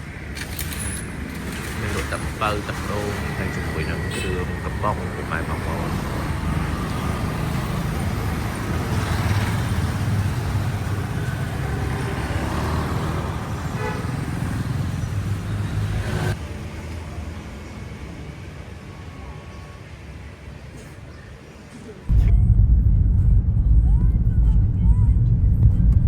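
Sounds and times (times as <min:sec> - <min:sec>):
motorcycle engine and road noise: 0:00.0 - 0:18.3.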